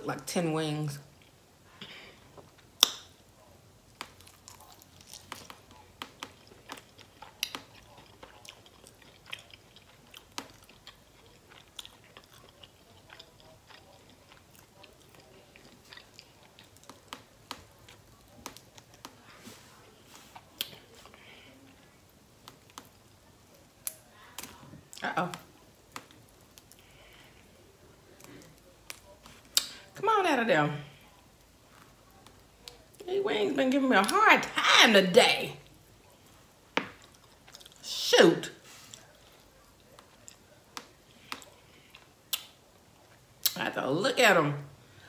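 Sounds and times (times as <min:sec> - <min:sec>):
person chewing wet mouth clicks: 0:04.0 - 0:17.6, 0:40.0 - 0:42.6.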